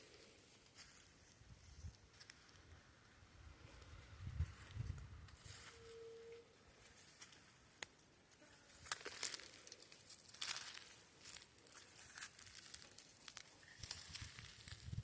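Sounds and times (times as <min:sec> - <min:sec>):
leaves crunching underfoot: 0:04.5 - 0:06.1, 0:08.6 - 0:15.0.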